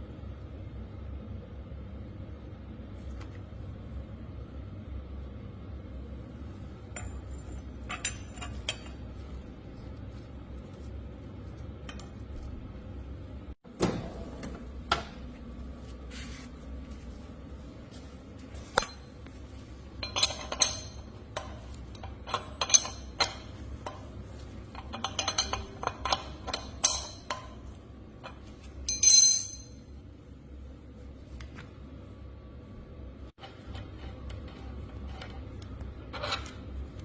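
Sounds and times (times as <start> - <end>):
metal tools clinking: 6.9 - 9.1, 20.0 - 24.0, 24.7 - 27.6, 28.2 - 29.8
ringing metallic clink: 28.9 - 29.8.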